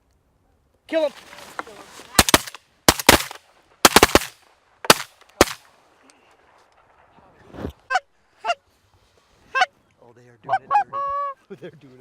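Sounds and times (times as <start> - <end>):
shotgun blasts: 2.2 - 5.7.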